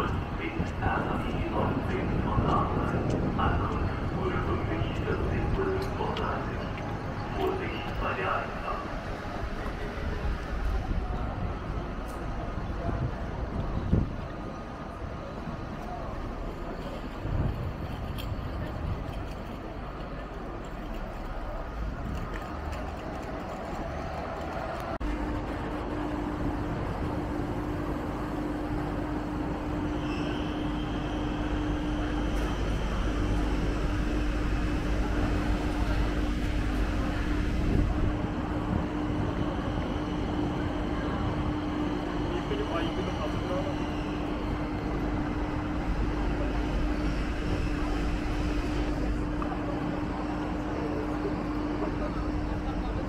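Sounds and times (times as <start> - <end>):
constant hum: 0.0 - 53.0
train rumble: 0.0 - 53.0
faint high whine: 25.0 - 53.0.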